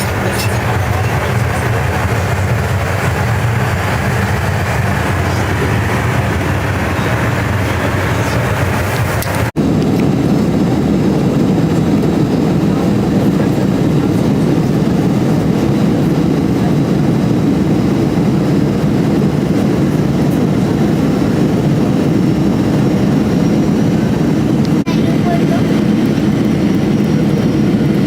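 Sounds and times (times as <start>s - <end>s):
aircraft cabin engine roar: 0.0s - 28.0s.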